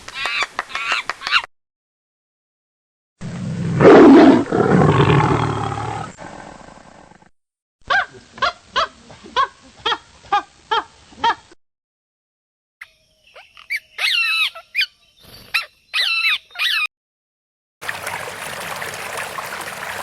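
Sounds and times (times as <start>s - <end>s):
big cat roaring: 3.4s - 7.3s.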